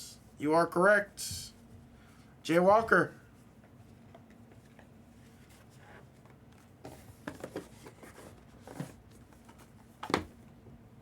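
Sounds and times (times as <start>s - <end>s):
handling rustles and scrapes: 3.3s - 9.9s.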